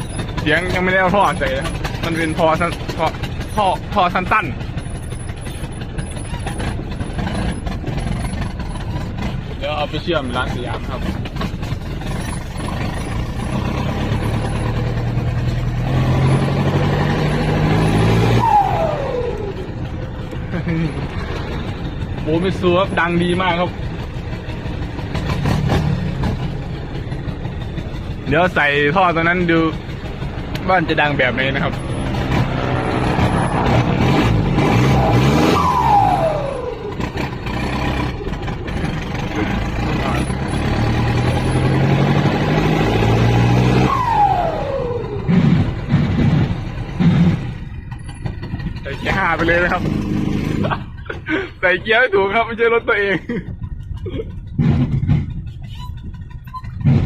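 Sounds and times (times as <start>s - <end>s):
loud motorcycle engine revving: 0.0s - 51.1s, 54.2s - 57.0s
tone sliding down in pitch: 32.5s - 37.0s, 43.8s - 45.3s.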